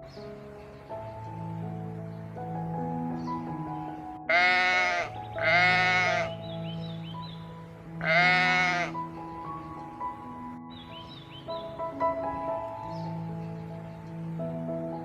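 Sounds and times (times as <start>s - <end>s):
soft background music: 0.0s - 15.0s
farm animal bleating: 4.3s - 6.4s, 8.0s - 9.0s.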